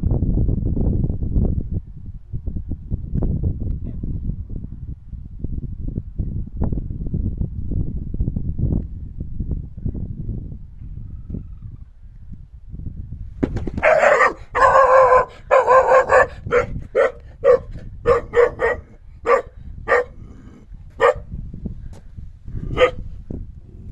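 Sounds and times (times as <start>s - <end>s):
animal barking: 13.8s - 21.3s, 22.6s - 23.0s.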